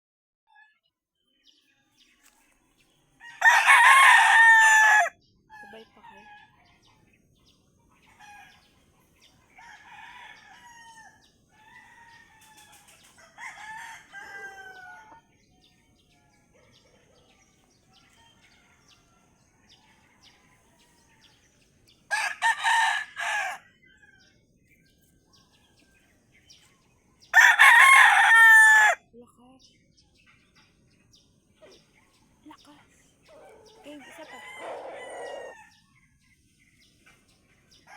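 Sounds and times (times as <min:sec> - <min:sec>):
chicken clucks and calls: 0:03.1 - 0:29.0, 0:30.1 - 0:37.9
rooster crowing: 0:03.2 - 0:05.2, 0:09.6 - 0:15.2, 0:22.1 - 0:24.3, 0:27.3 - 0:29.0, 0:33.5 - 0:35.8.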